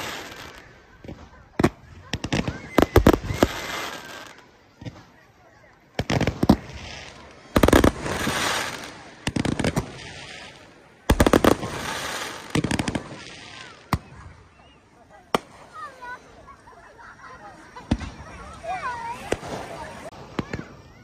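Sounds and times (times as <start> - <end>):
fireworks bangs: 0.0 - 16.2, 17.7 - 21.0
fireworks crackling: 0.0 - 21.0.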